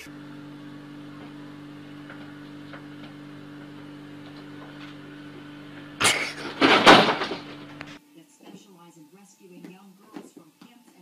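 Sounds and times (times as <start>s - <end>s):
low two-pitch hum: 0.0s - 8.2s.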